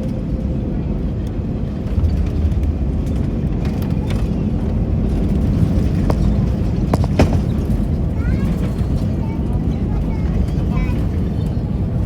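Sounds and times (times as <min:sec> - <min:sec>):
jet engines rumbling in cabin: 0:00.0 - 0:12.0
faint rattles: 0:03.0 - 0:09.1.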